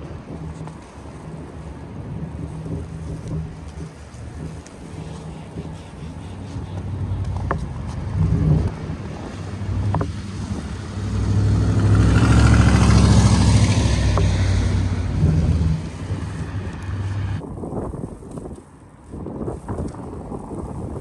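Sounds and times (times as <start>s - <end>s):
heavy vehicle engine passing: 1.2s - 17.4s.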